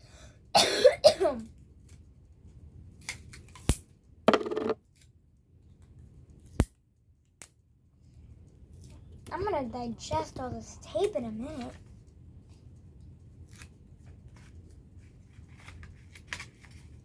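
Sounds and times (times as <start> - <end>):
paper rustling: 15.3 - 17.0.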